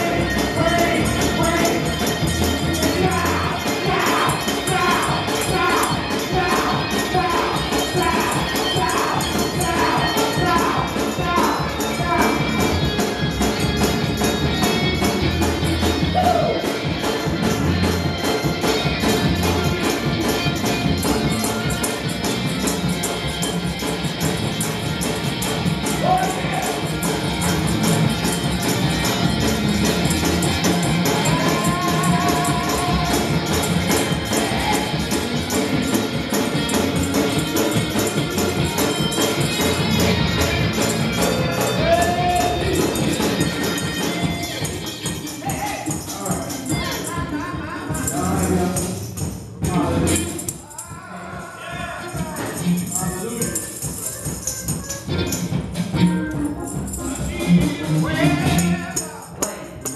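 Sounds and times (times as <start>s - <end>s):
tambourine shaken: 0.0s - 59.9s
voices singing or calling out: 25.9s - 49.0s.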